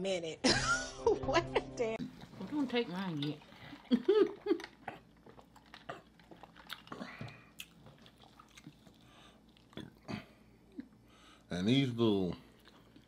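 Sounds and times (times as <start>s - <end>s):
chewing and biting: 2.0s - 10.1s, 12.4s - 13.0s.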